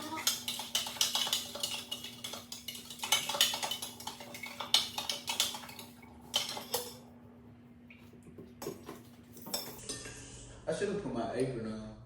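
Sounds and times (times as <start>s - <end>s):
metal utensils clinking on dishes: 0.0s - 7.0s, 8.6s - 10.0s.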